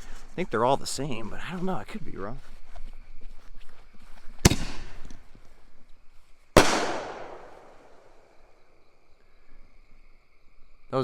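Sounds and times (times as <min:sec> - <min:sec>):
firework mortar launch bang: 0:06.6 - 0:08.1
firework shell bursting with echo: 0:06.6 - 0:08.2.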